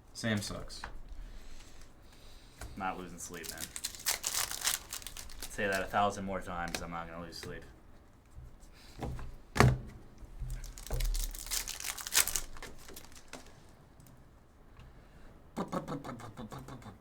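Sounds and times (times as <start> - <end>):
wrappers crinkling: 2.8 - 6.8, 10.4 - 13.8
cards being handled: 3.0 - 7.6, 10.4 - 13.8.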